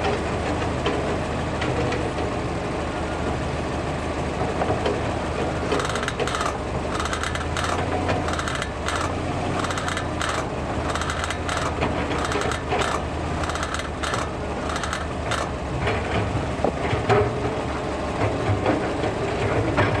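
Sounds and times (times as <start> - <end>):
engine idling: 0.0 - 20.0
brake caliper creaking: 5.7 - 15.6.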